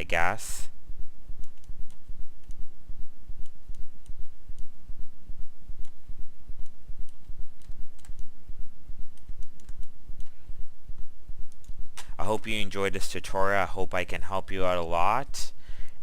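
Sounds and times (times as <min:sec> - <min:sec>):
pulsing low rumble: 0:00.6 - 0:12.0
mouse and keyboard clicks: 0:06.6 - 0:08.3, 0:09.1 - 0:10.4.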